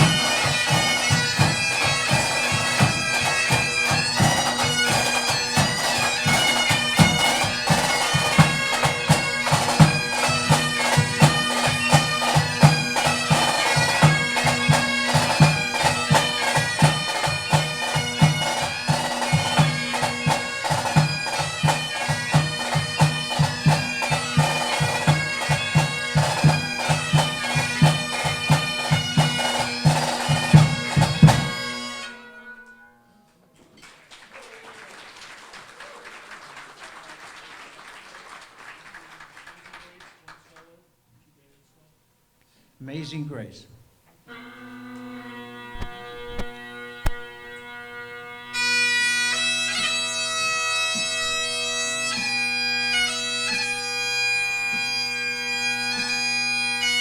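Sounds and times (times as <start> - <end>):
bagpipes melody over drones: 0.0 - 32.6, 44.3 - 46.0, 46.6 - 57.0
drum strokes: 45.8 - 47.6.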